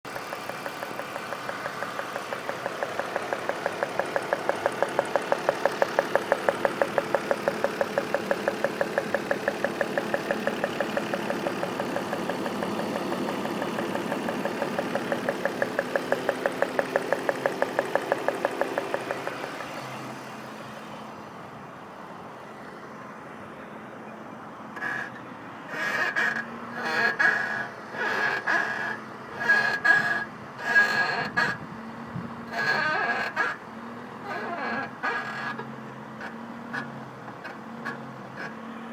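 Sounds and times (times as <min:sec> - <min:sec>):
car engine rhythmic pulsing: 0:00.0 - 0:20.6.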